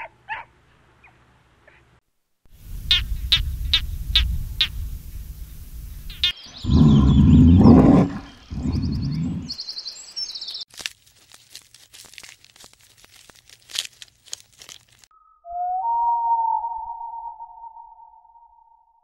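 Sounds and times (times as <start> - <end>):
animal's loud low call: 2.6 - 9.6
birds chirping: 2.6 - 10.7
crunching crackling clicks: 10.7 - 15.1.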